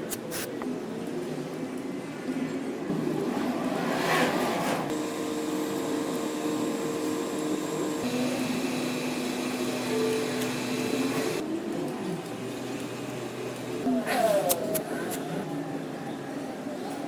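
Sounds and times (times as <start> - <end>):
motor humming: 4.8 - 11.4.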